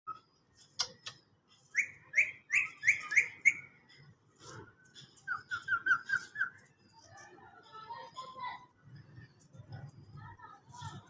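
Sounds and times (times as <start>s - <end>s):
parrot chirping: 0.1s - 4.0s, 5.2s - 7.0s.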